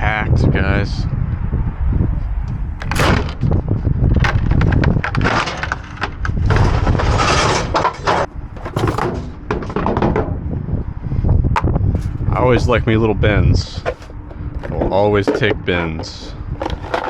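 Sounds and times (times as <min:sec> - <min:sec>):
steady low rumble: 0:00.0 - 0:17.0
scrap metal clanking and scraping: 0:02.8 - 0:10.6, 0:11.6 - 0:13.0, 0:13.6 - 0:17.0.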